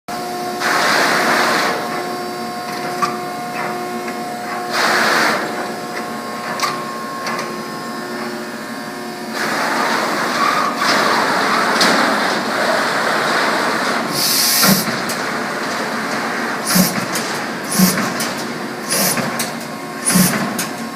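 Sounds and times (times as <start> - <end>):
punch machine mechanical hum: 0.1 - 20.9
rushing noise bursts: 16.3 - 18.2.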